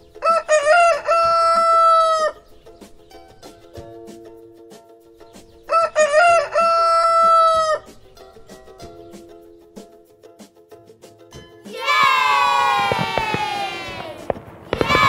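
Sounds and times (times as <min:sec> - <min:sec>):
quiet background music: 0:00.0 - 0:15.0
rooster crowing: 0:00.2 - 0:02.4, 0:05.7 - 0:07.9, 0:12.0 - 0:15.0.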